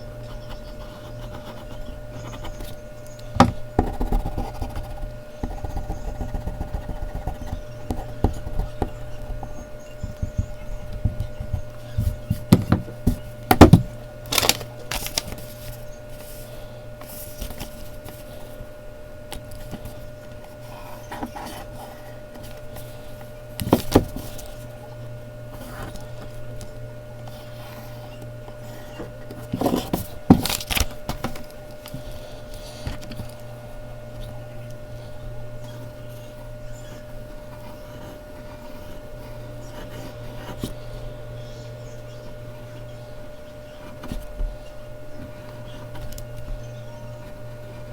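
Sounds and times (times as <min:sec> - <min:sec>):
steady low hum: 0:00.0 - 0:47.9
pencil scratching and tapping on paper: 0:03.4 - 0:13.9.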